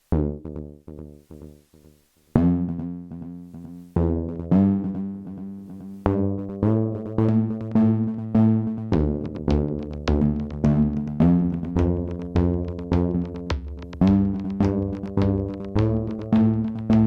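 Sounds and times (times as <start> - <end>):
plucked synth pattern: 2.4 - 17.0
drum machine: 9.0 - 17.0.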